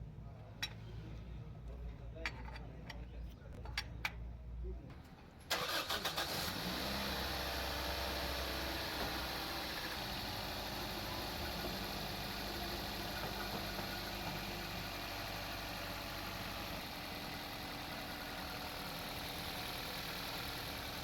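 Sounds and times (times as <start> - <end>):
car engine idling: 5.5 - 21.0.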